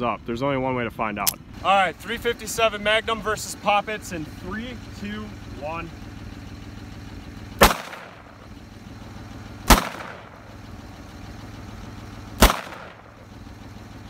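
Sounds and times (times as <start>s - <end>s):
handgun shots with echo: 7.6s - 8.2s, 9.7s - 10.4s, 12.4s - 13.0s.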